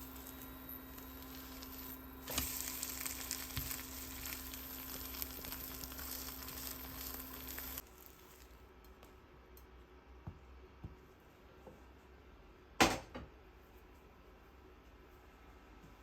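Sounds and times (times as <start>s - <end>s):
food sizzling in a frying pan: 0.0s - 8.4s.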